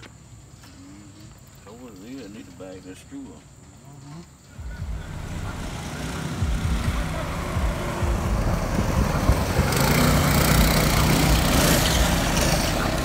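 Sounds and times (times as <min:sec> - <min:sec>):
mini bike engine running: 0:04.8 - 0:13.0.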